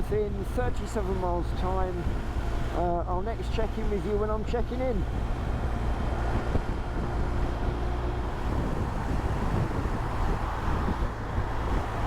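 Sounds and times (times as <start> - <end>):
wind noise on microphone: 0.0 - 2.8, 4.9 - 12.0
motorcycle engine cruising: 5.1 - 12.0.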